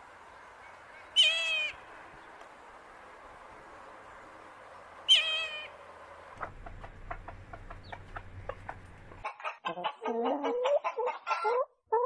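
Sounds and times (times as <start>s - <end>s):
hen clucking: 5.1s - 12.0s.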